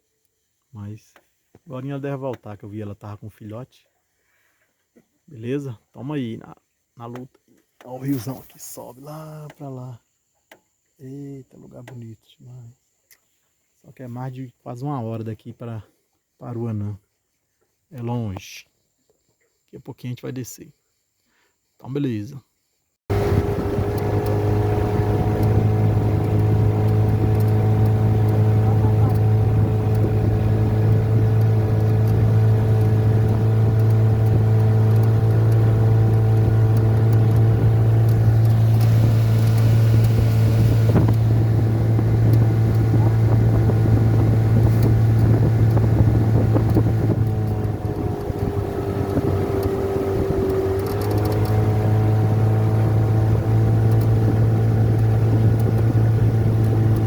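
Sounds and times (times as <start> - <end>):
outboard motor humming: 23.1 - 57.0.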